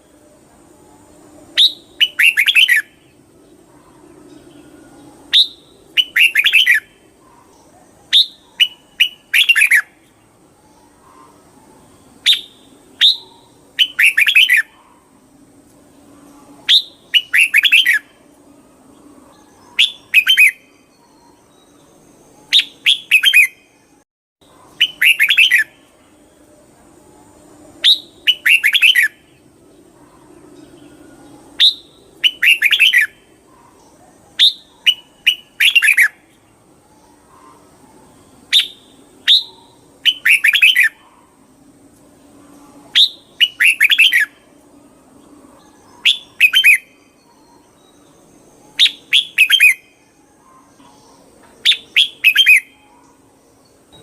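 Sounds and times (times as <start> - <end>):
bird singing whistled phrases: 1.6 - 3.0, 5.3 - 7.0, 8.1 - 10.0, 12.2 - 14.8, 16.6 - 18.2, 19.5 - 21.7, 22.4 - 23.7, 24.8 - 25.8, 27.8 - 29.2, 31.6 - 33.2, 34.4 - 36.2, 38.5 - 41.1, 42.9 - 44.5, 45.7 - 48.1, 48.7 - 53.1.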